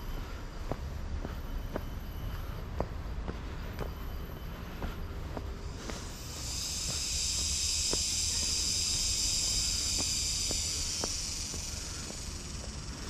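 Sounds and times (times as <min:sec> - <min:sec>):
high-pitched hissing buzz: 0:04.3 - 0:13.0.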